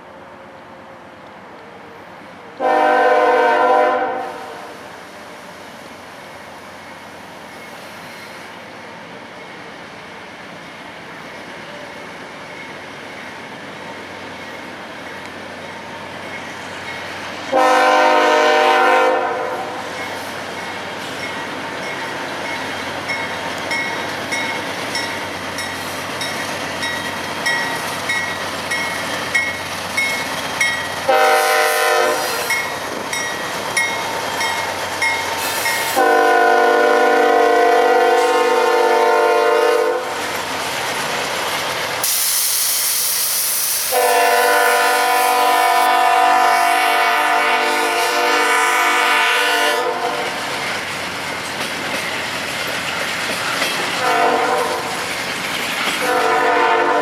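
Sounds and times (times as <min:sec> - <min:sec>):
train rumble: 0:00.0 - 0:57.0
locomotive air horn: 0:02.6 - 0:04.9, 0:17.5 - 0:19.8, 0:31.1 - 0:32.5, 0:35.8 - 0:40.2, 0:43.8 - 0:50.4, 0:54.0 - 0:54.9, 0:56.0 - 0:57.0.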